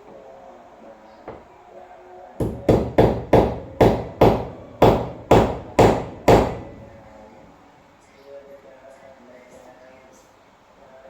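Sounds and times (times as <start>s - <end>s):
hammering knocks: 2.4s - 7.2s.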